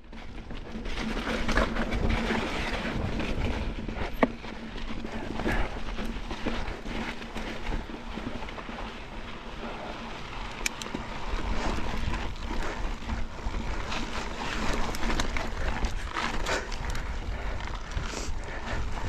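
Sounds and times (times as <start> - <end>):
bike knocking and rattling: 0.0 - 19.0
bike tyres rumbling on rock: 0.0 - 19.0.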